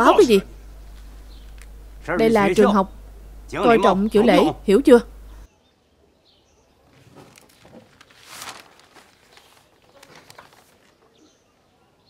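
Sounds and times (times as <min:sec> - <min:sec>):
small birds chirping: 0:00.0 - 0:12.0
soft rustle: 0:06.8 - 0:11.3.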